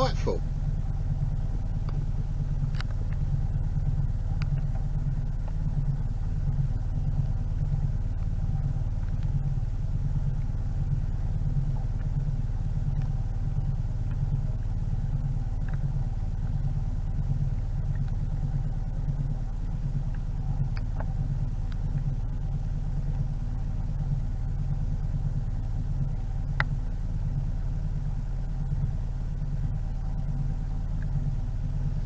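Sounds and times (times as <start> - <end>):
diesel engine throbbing: 0.0 - 0.4.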